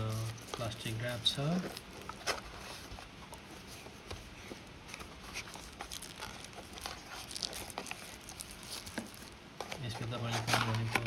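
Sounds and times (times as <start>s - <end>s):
clicks and rustles of plastic packaging: 0.0s - 11.0s.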